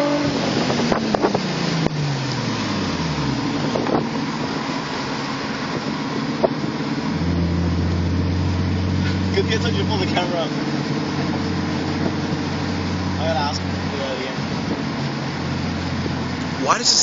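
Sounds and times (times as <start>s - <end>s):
wind noise on microphone: 0.0s - 2.2s, 3.1s - 4.4s, 11.4s - 12.6s
car engine revs dropping: 0.0s - 16.6s
engine drone: 0.0s - 17.0s.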